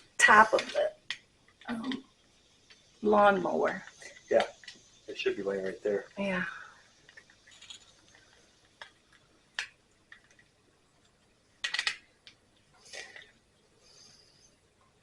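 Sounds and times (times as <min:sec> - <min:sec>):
small metal parts clicking: 0:07.0 - 0:12.4.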